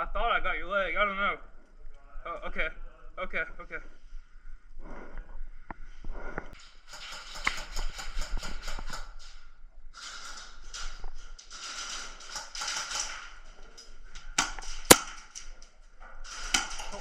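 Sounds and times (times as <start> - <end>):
airsoft guns firing: 14.4 - 15.2.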